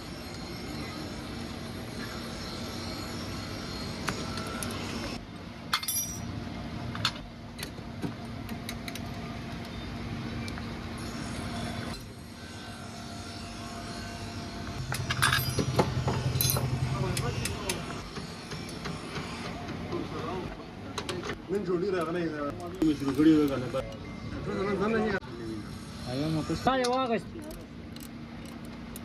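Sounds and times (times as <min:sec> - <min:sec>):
steady background hum: 0:00.0 - 0:29.0
metallic clinks of hand tools: 0:14.8 - 0:17.8.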